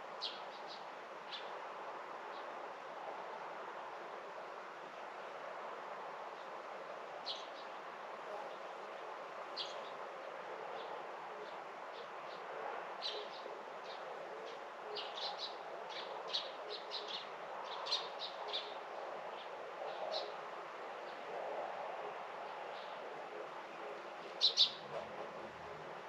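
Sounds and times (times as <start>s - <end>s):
steady background hiss: 0.0s - 26.0s
small birds chirping: 24.0s - 24.9s.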